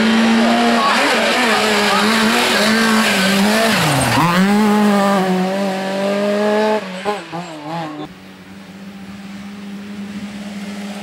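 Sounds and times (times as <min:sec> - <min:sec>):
rally car engine at high revs: 0:00.0 - 0:08.1.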